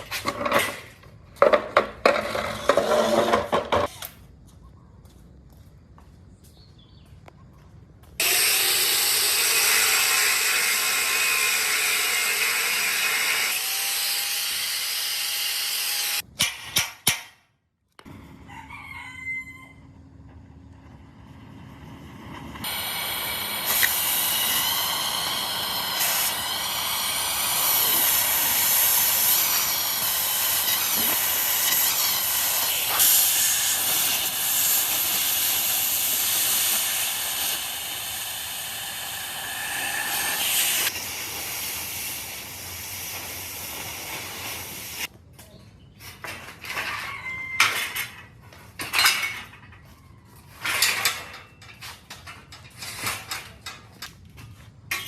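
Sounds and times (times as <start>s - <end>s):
high-pressure spray hissing: 22.6s - 45.1s.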